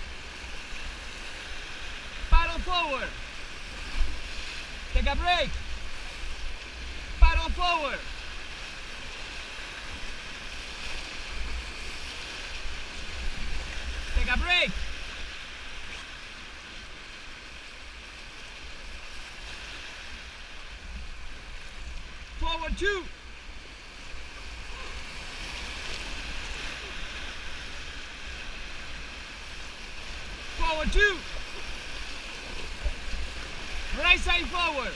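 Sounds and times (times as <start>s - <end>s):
whitewater river rushing: 0.0s - 34.9s.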